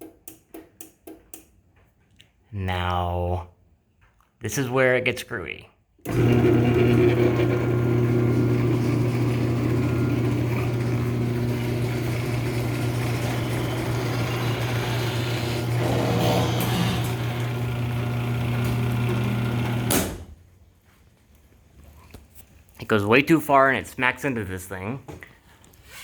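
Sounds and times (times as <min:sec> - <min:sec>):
garage door opener motor: 0:06.0 - 0:20.4.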